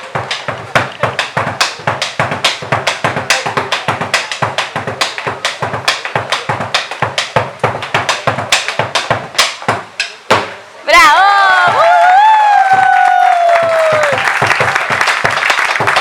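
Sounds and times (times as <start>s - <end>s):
boots stamping and tapping: 0.0s - 10.6s
drum beats: 0.0s - 16.0s.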